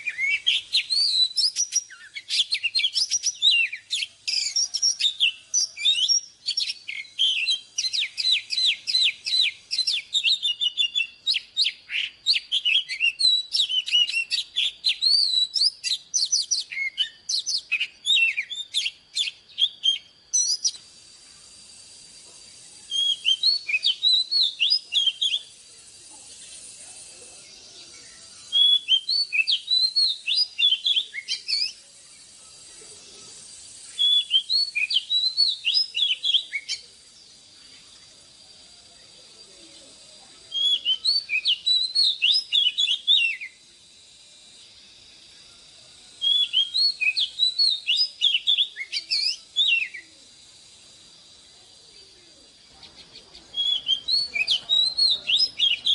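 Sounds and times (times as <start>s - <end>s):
bird singing whistled notes: 0.0s - 55.9s
faint high-pitched hiss: 0.0s - 55.9s.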